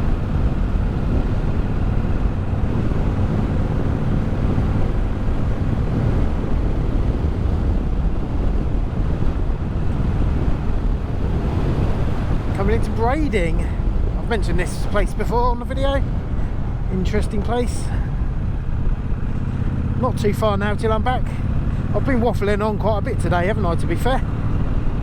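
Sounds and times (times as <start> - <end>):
motorcycle engine running: 0.0 - 14.3, 15.5 - 25.0
wind rushing over microphone: 0.0 - 25.0.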